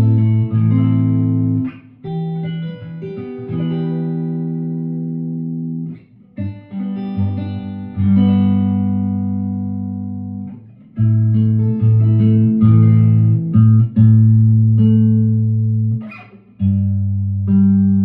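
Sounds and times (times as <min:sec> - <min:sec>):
guitar plucked low notes: 0:00.0 - 0:18.0.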